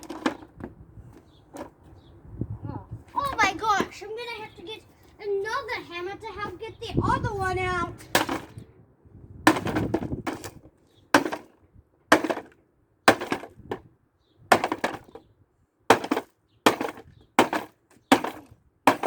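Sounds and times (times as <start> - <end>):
plastic clattering: 0.0 - 1.8
hammer striking plastic toy car: 8.2 - 8.6, 11.2 - 11.5, 12.1 - 13.5, 14.5 - 15.1, 15.9 - 19.0.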